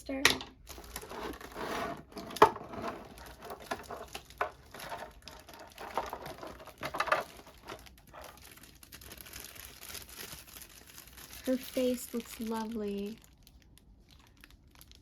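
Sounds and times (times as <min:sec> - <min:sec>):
plastic packaging crinkling: 0:00.6 - 0:15.0.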